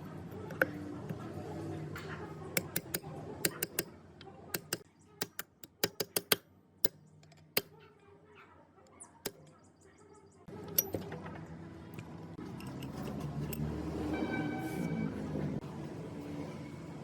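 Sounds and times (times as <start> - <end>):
metal parts clicking and tapping: 2.0 - 7.7, 10.6 - 13.7.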